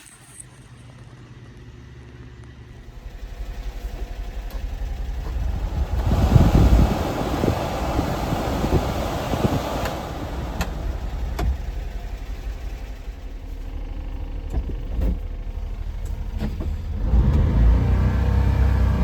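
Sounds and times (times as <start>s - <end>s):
truck engine rumbling: 2.8s - 19.0s.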